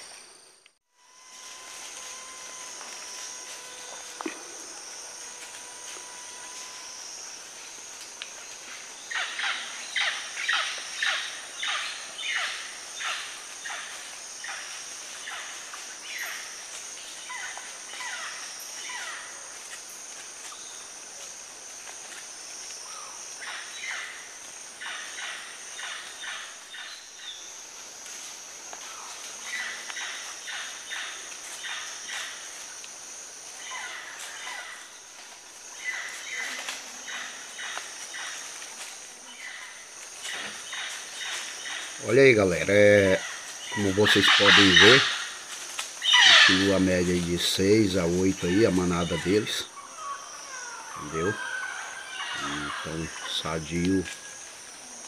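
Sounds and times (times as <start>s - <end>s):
forest insects droning: 0.0s - 55.0s.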